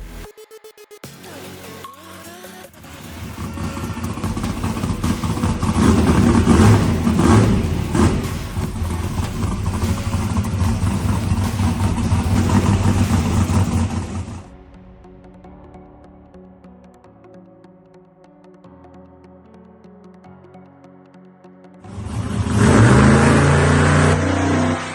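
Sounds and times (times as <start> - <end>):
car engine running roughly and revving: 2.7 - 14.5, 21.9 - 24.9.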